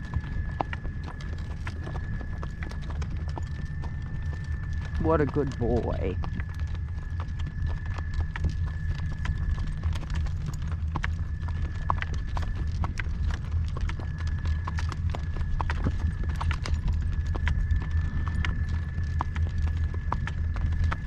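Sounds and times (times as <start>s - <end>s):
constant low rumble: 0.0s - 21.0s
horse hooves clip-clopping: 0.0s - 21.0s.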